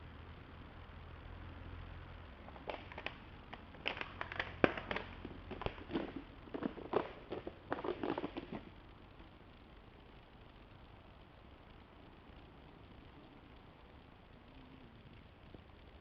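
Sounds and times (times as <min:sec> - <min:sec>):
faint low steady hum: 0:00.0 - 0:16.0
irregular sharp clicks and knocks: 0:02.4 - 0:08.7.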